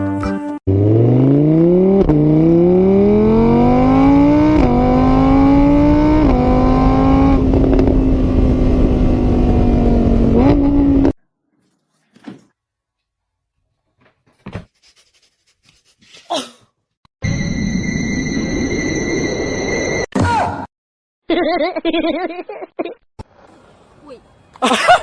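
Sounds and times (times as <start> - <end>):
car engine accelerating: 0.7 - 11.2.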